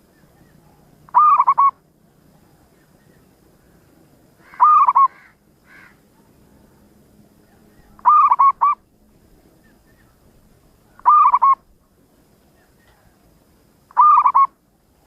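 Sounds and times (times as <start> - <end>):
dove cooing: 0.6 - 1.8, 4.4 - 5.9, 7.6 - 8.8, 10.9 - 11.7, 13.9 - 14.6.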